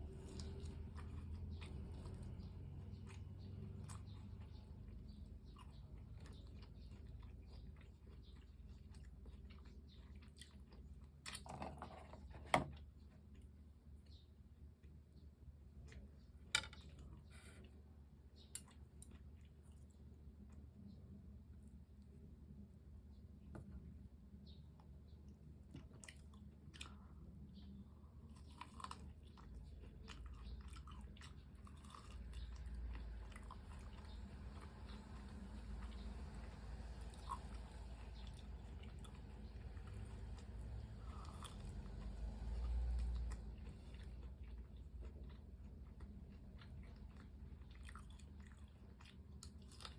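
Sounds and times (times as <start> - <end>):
chewing fried chicken crunching: 0.0 - 14.2, 25.2 - 49.9.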